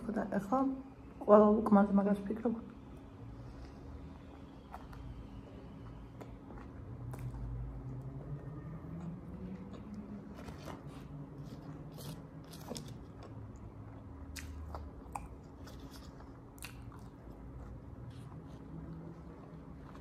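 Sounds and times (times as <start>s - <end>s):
chewing and biting: 4.3s - 20.0s.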